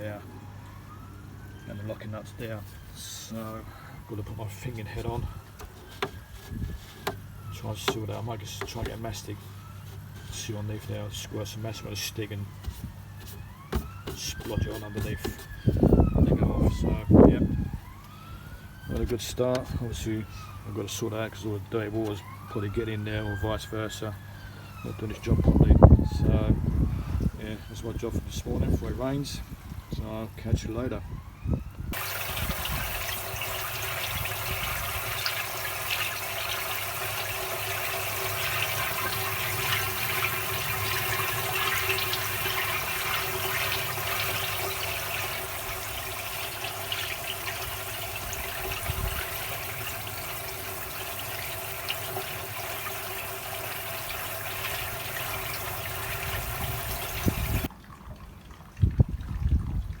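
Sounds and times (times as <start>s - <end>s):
water running and splashing: 32.0s - 60.0s.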